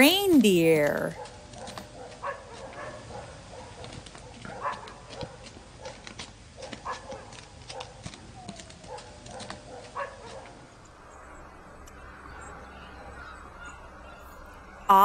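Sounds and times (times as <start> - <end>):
low background noise: 0.0 - 15.0
reindeer clicks: 3.8 - 10.6.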